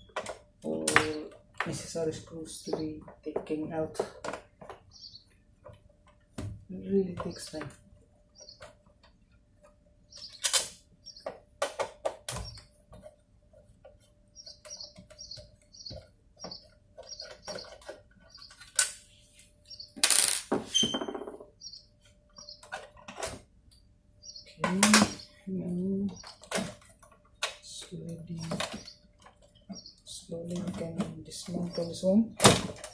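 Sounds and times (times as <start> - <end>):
bird chirping: 4.6 - 5.5, 6.8 - 11.4, 12.3 - 12.7, 14.2 - 18.9, 19.6 - 23.1, 23.8 - 26.7, 27.4 - 32.9
parts rattling: 20.0 - 20.9.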